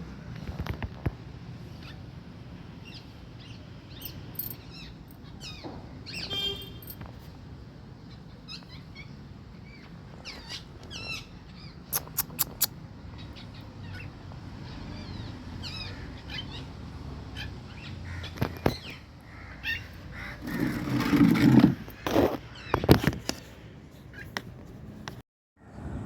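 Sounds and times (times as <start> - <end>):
birds chirping: 2.8 - 7.0, 8.0 - 23.1
sharp clicks: 11.9 - 12.7.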